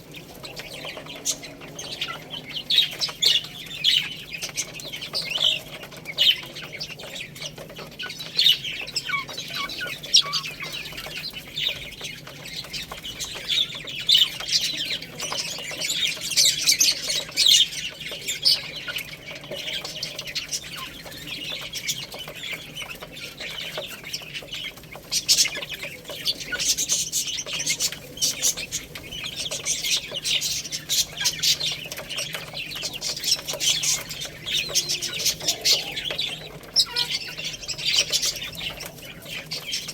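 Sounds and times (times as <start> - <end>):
baby chicks chirping: 0.0 - 39.9.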